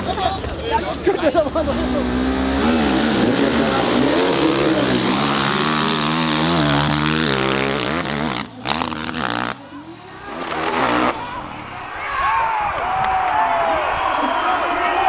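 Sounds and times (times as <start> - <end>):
dirt bike engine revving: 1.4 - 9.6, 10.2 - 11.5.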